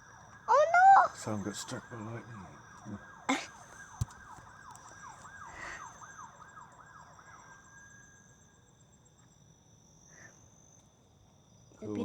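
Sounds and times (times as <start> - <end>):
crickets chirping: 0.0 - 12.0
faint siren yelping: 0.3 - 8.1.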